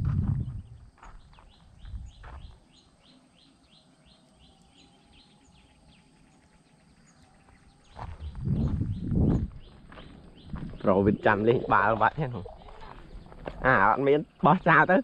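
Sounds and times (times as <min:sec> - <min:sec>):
low thumps: 0:00.0 - 0:01.0, 0:08.0 - 0:09.7
quiet rural ambience: 0:00.0 - 0:15.0.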